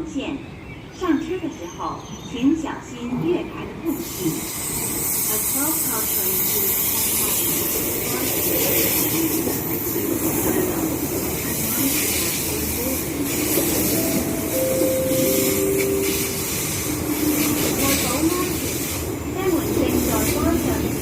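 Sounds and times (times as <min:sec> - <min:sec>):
electric train pulling in: 0:03.9 - 0:21.0
short steady tones: 0:13.9 - 0:17.2.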